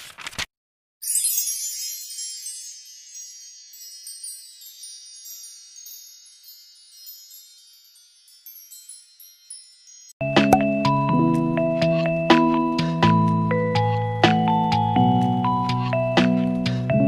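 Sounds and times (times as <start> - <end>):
high tinkling chimes: 1.0 - 10.2.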